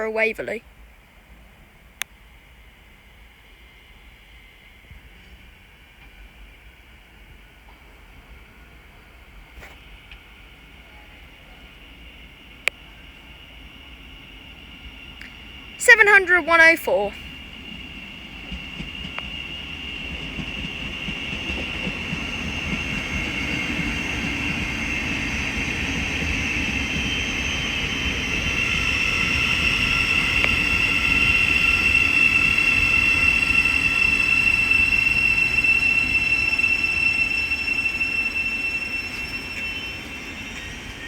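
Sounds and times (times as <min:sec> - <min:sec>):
train rumbling: 0:00.0 - 0:41.0
train wheels squealing: 0:02.6 - 0:41.0.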